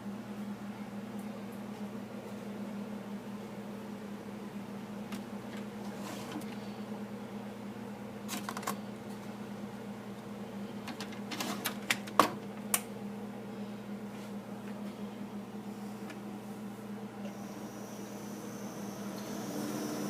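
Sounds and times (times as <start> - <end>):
coffee maker humming: 13.9 - 20.0.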